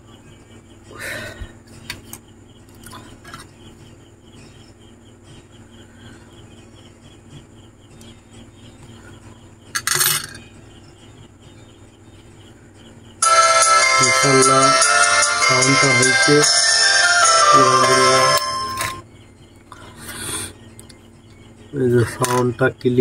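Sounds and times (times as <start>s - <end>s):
fast regular chirping: 0.0s - 9.8s, 10.4s - 23.0s
steady low hum: 0.0s - 23.0s.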